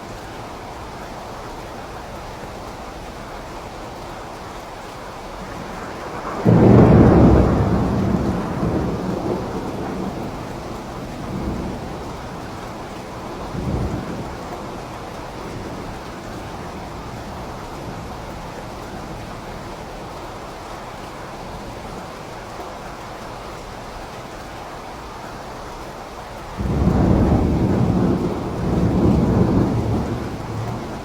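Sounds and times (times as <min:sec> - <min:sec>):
steady rain: 0:00.0 - 0:31.0
thunder clap and rumble: 0:05.4 - 0:19.4, 0:26.6 - 0:31.0.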